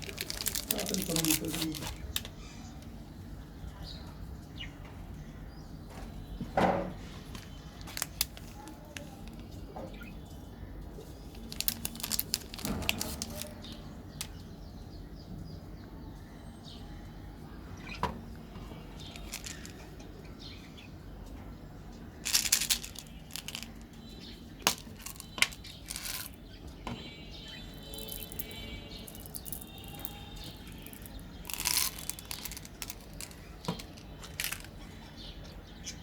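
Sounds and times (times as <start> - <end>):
crackly chewing and clicking: 0.0 - 2.4, 7.4 - 9.6, 11.4 - 14.4, 27.8 - 34.8.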